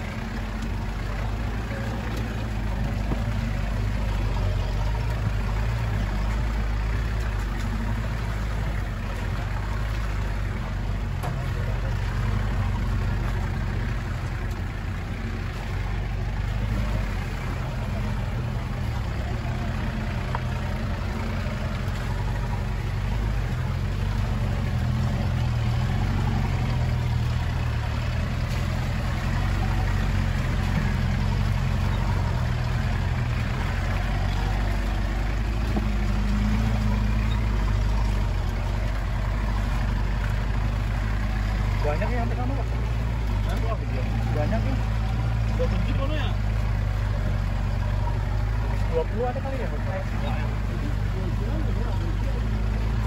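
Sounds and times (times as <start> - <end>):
engine low drone: 0.0 - 53.0
rough track noise: 0.0 - 53.0.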